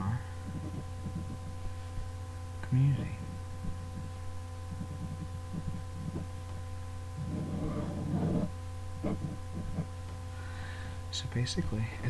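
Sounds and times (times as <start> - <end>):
electrical hum: 0.0 - 12.0
pen scratching on paper: 0.5 - 1.5, 7.2 - 10.0.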